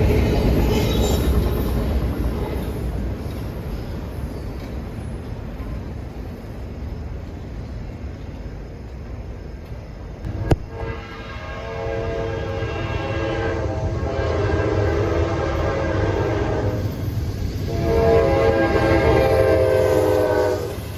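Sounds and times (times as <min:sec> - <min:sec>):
diesel locomotive rumbling: 0:00.0 - 0:20.9
locomotive air horn: 0:10.3 - 0:16.8, 0:17.7 - 0:20.9.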